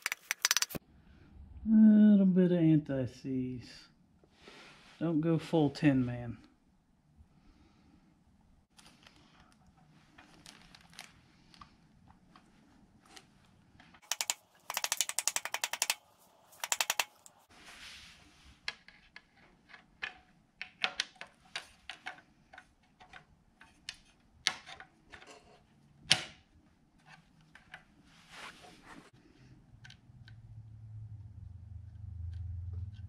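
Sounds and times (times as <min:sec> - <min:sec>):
ratchet wrench clicking: 0:00.0 - 0:00.8, 0:14.0 - 0:16.0, 0:16.6 - 0:17.3.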